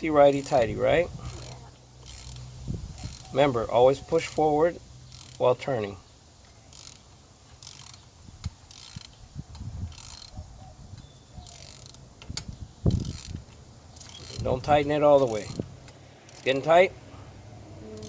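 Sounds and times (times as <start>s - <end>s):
socket ratchet clicking: 1.3s - 3.3s, 5.1s - 5.4s, 6.7s - 10.4s, 11.4s - 14.5s, 15.2s - 16.7s.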